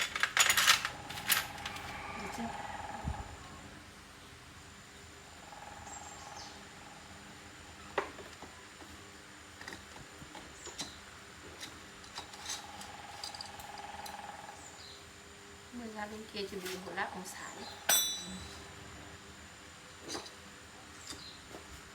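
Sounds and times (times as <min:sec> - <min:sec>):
faint steady hum: 0:00.0 - 0:21.9
insect trilling: 0:01.8 - 0:03.5.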